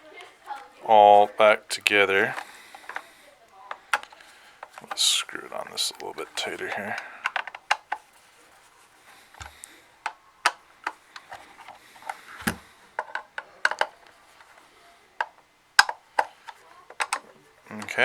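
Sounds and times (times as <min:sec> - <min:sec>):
screwdriver clicks and taps: 0:15.2 - 0:17.2.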